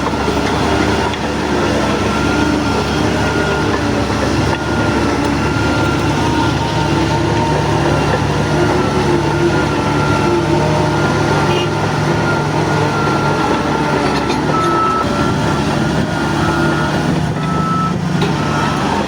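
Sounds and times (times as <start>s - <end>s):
bulldozer diesel engine drone: 0.0s - 19.0s.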